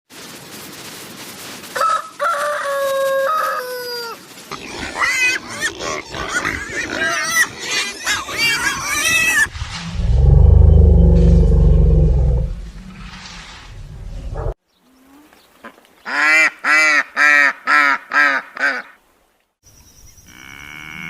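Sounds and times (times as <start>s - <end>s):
rooster crowing: 1.8s - 4.2s
animals clucking and squealing: 1.8s - 14.6s
loud low rumble: 9.5s - 14.6s.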